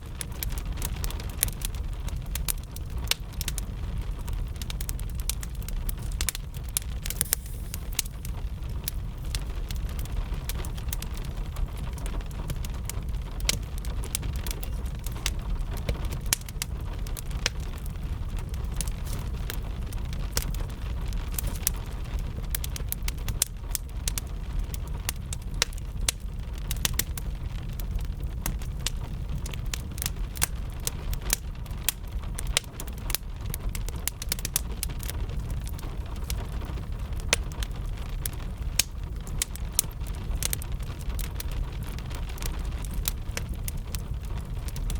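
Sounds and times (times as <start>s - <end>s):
wood fire crackling and popping: 0.0s - 44.9s
rain hiss: 6.8s - 9.6s.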